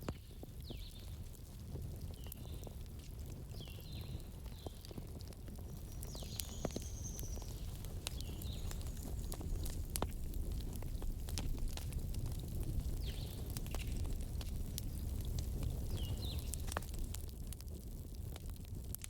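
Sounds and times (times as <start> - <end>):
campfire crackling: 0.0 - 19.0
high-pitched chirps from fire: 3.7 - 10.0.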